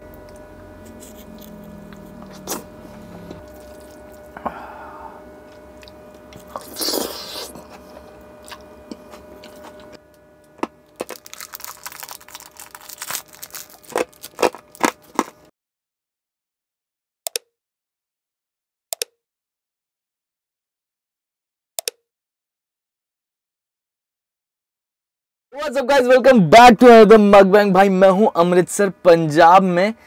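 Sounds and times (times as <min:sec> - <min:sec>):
person chewing crunchy food: 0:00.8 - 0:15.5.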